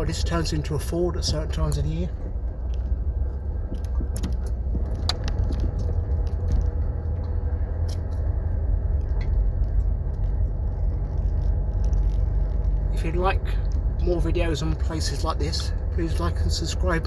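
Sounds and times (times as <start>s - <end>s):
car engine and tyres rumbling: 0.0s - 17.0s
small rattles and clicks: 0.8s - 14.1s.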